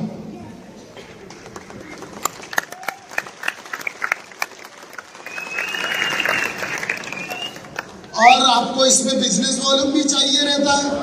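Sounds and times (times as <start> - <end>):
audience applauding: 1.0 - 8.2.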